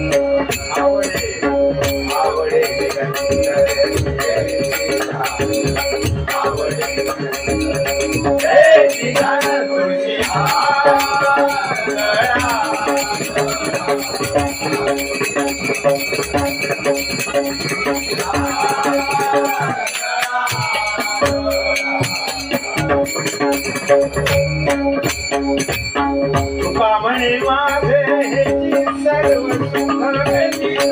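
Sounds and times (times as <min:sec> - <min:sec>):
wordless vocal melody: 0:00.0 - 0:25.0, 0:26.4 - 0:30.9
drumming: 0:00.0 - 0:30.9
hand cymbals jingling: 0:00.0 - 0:30.9
steady held notes: 0:00.0 - 0:30.9.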